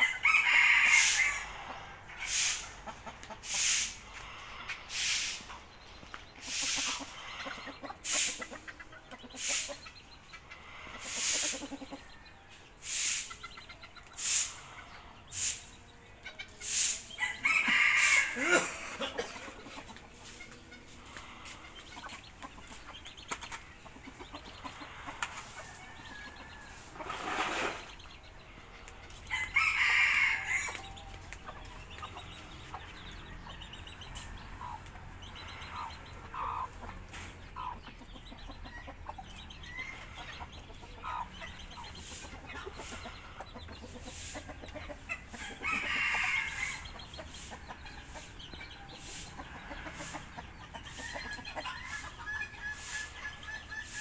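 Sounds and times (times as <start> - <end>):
chicken long calls: 0.0 - 5.6, 17.2 - 19.5
chickens clucking: 0.0 - 54.0.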